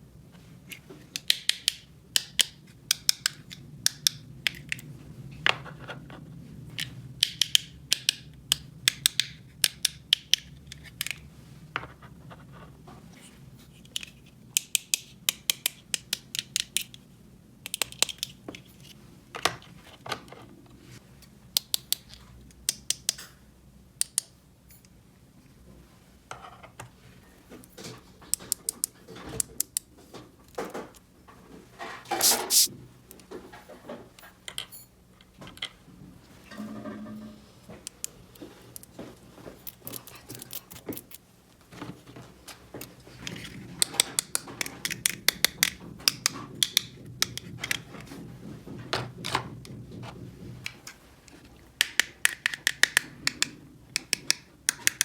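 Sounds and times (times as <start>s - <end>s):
plastic toy pieces clicking: 6.8s - 11.2s, 17.6s - 18.7s, 51.8s - 55.0s.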